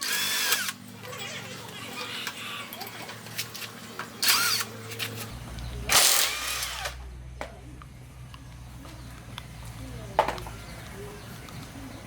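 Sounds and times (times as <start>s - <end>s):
handheld power tool bursts: 0.0s - 0.8s, 5.9s - 7.0s.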